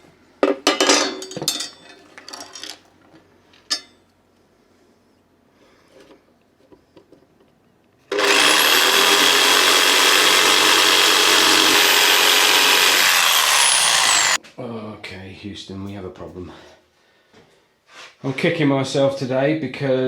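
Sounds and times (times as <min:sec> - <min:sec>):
power tool motor whine: 0:08.1 - 0:14.4.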